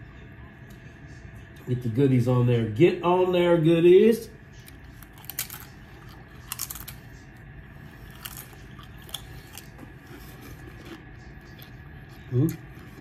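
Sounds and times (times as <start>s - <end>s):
crunching tortilla chip: 4.7s - 7.3s, 8.0s - 13.0s.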